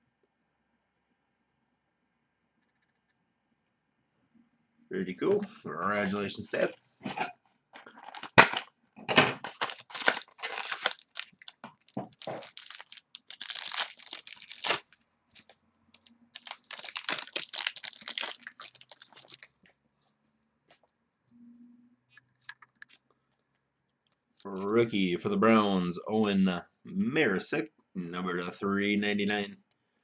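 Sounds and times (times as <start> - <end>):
card packaging crinkling and tearing: 7.8 - 8.7, 9.4 - 19.6.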